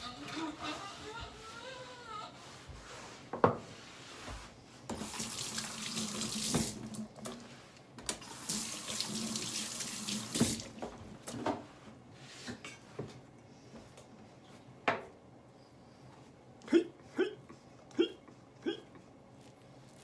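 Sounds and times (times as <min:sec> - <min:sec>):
tap water splashing: 0:04.9 - 0:07.4, 0:08.0 - 0:11.4.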